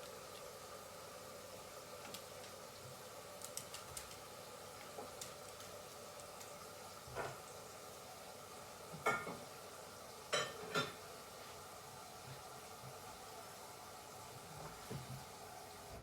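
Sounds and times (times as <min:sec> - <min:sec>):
faint steady hum: 0:00.0 - 0:16.0
dishes knocking and scraping: 0:09.0 - 0:09.4, 0:10.4 - 0:11.0.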